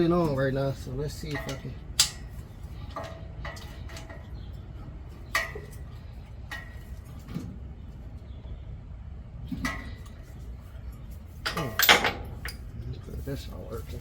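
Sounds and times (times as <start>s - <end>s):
steady low hum: 0.0s - 14.0s
tools clinking on metal: 1.1s - 4.3s, 11.4s - 12.7s.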